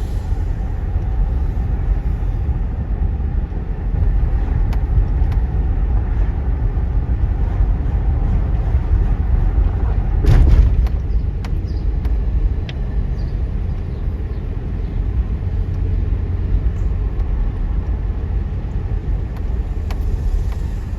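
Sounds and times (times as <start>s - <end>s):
diesel locomotives idling: 0.0s - 20.9s.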